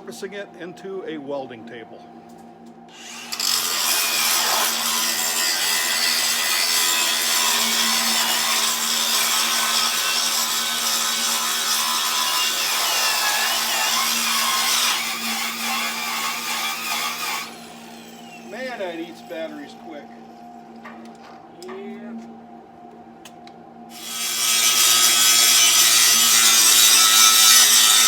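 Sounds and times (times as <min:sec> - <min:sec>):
power tool cutting steel: 0:02.9 - 0:20.0, 0:23.9 - 0:28.0.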